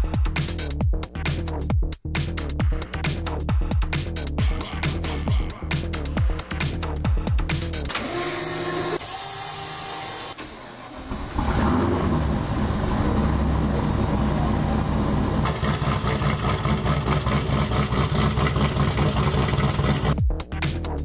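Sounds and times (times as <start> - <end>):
electronic music: 2.4 - 8.0
car engine running: 11.0 - 20.2.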